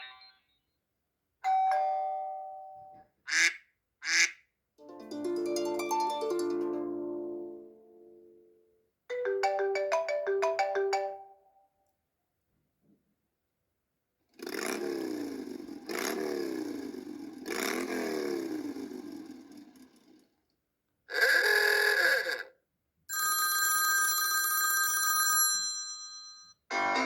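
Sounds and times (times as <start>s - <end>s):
telephone bell ringtone: 9.1s - 11.4s, 23.1s - 27.0s.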